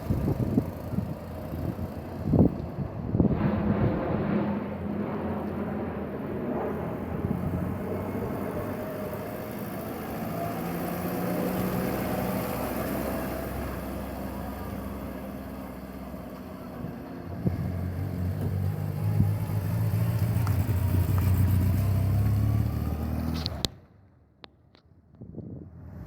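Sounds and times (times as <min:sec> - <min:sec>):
car engine running: 0:00.0 - 0:03.3.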